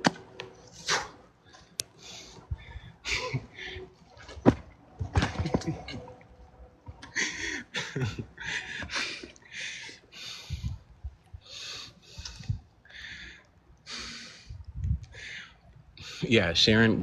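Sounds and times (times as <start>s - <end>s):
person breathing hard: 0.8s - 4.0s, 7.0s - 16.3s
dull low thumps: 14.6s - 15.2s.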